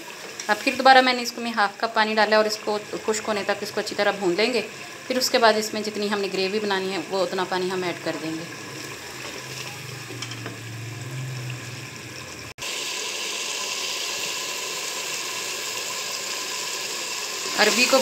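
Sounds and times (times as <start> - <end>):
curry bubbling in a pot: 0.0 - 18.0
food sizzling in a pan: 0.0 - 18.0
wooden spatula stirring: 8.1 - 10.6.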